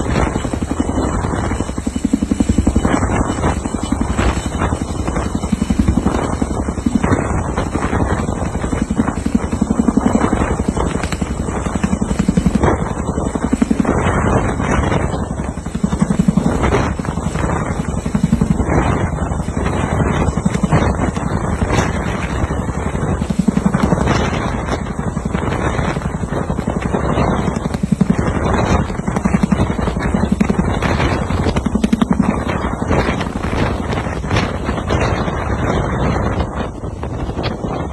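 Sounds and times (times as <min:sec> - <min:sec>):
helicopter rotor chopping: 0:00.0 - 0:37.9.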